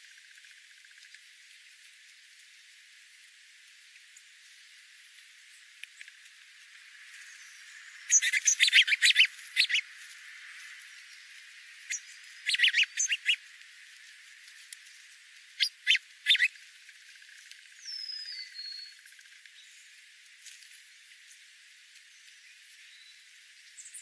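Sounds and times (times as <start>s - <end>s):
birds chirping: 7.2s - 10.0s, 10.9s - 13.4s, 15.5s - 16.6s.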